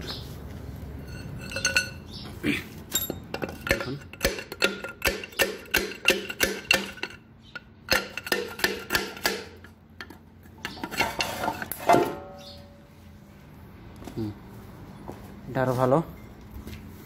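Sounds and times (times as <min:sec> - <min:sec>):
ringing metal clank: 0:01.0 - 0:02.1, 0:02.9 - 0:07.2, 0:11.0 - 0:12.8
hand tools clinking on metal: 0:01.0 - 0:02.2, 0:02.9 - 0:09.4.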